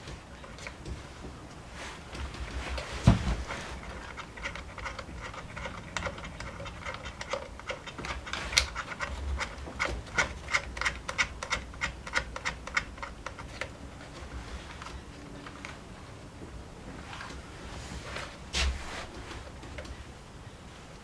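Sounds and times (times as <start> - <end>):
tools and parts clicking: 3.8 - 13.8.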